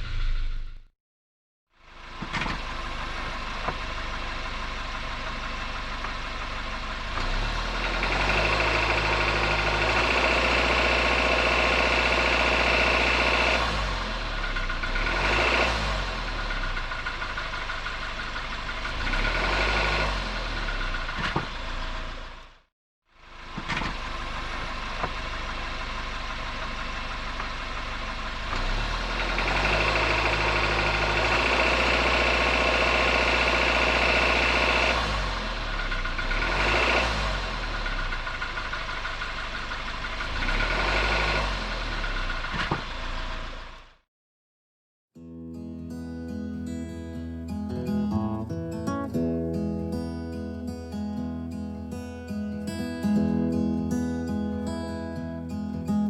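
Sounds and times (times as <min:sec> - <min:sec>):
car engine running: 0:00.0 - 0:00.9, 0:01.8 - 0:44.0
engine rattle: 0:01.8 - 0:44.0.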